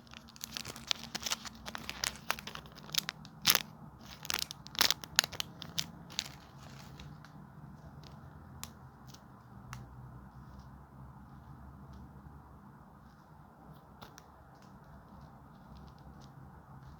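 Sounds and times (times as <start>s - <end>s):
squishy toy crinkling and crackling: 0.0s - 9.3s.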